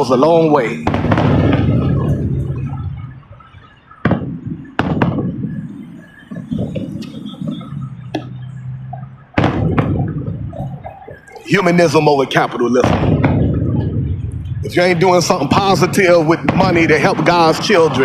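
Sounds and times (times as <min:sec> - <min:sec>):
fireworks bangs: 0:00.0 - 0:18.0
low rumbling booms: 0:00.0 - 0:18.0.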